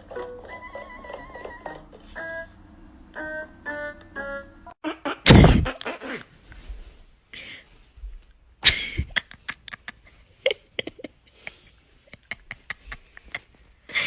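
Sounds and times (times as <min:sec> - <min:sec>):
light keyboard music: 0:00.0 - 0:04.8
loud noisy thump: 0:05.3 - 0:05.7.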